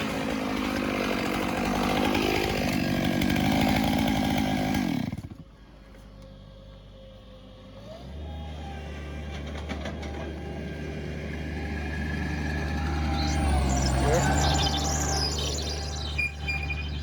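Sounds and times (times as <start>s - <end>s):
chainsaw engine revving: 0.0s - 5.4s, 8.0s - 17.0s
low engine hum: 5.8s - 17.0s.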